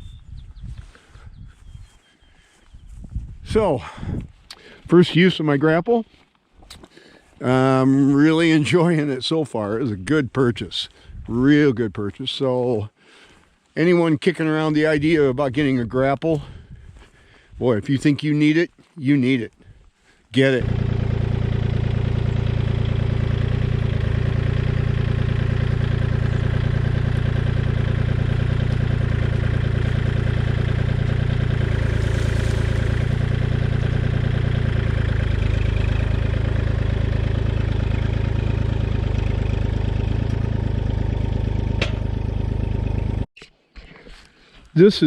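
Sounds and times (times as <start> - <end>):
tractor diesel engine running: 20.4 - 43.3.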